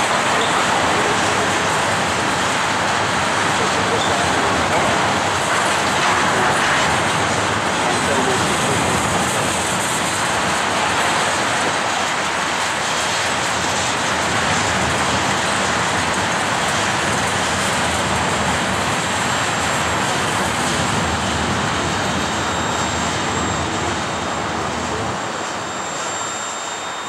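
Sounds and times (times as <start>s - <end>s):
faint high tones: 22.0s - 27.0s.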